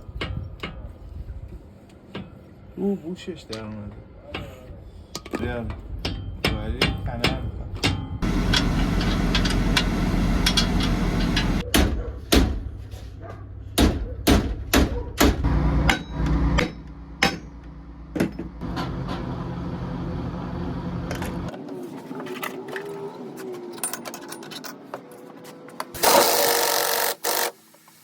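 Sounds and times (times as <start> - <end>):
steady low hum: 8.0 - 11.6
hammer striking metal: 13.8 - 17.6.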